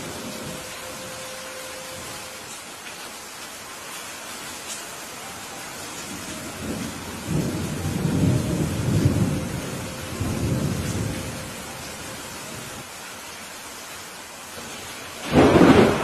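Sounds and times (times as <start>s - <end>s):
steady rain: 0.0s - 16.0s
thunder rumbling: 6.0s - 12.8s, 15.2s - 16.0s.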